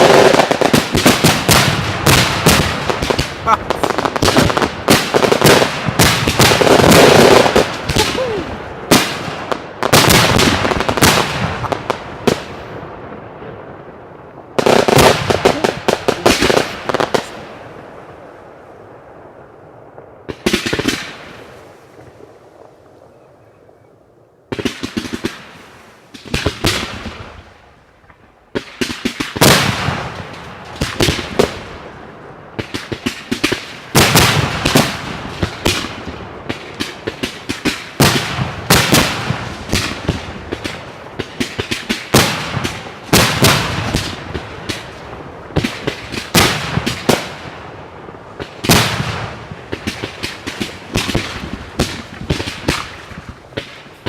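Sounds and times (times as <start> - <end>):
fireworks bursts and crackling: 0.0 - 54.0.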